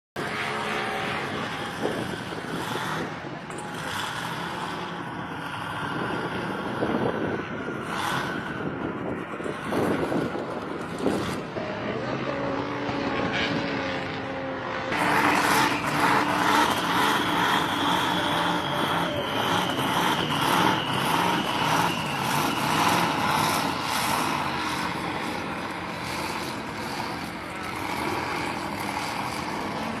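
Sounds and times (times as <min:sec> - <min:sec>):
truck engine running: 0:14.6 - 0:30.0.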